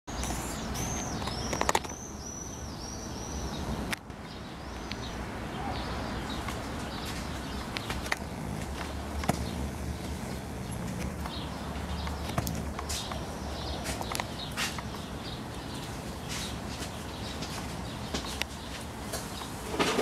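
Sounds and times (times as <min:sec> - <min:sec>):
small bird chirping: 0:00.1 - 0:19.6
outdoor background noise: 0:00.1 - 0:20.0
sharp clicks: 0:00.2 - 0:02.0, 0:06.4 - 0:15.0.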